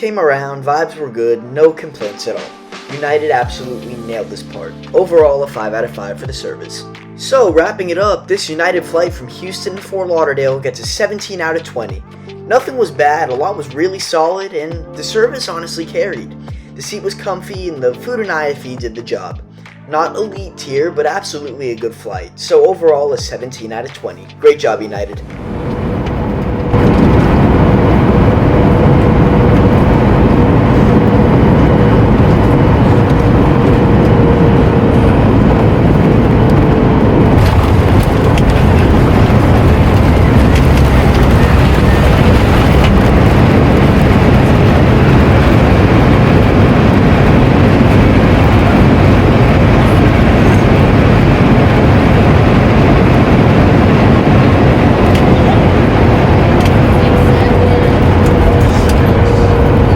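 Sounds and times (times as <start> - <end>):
aircraft engine and airflow rush: 25.2 - 59.9.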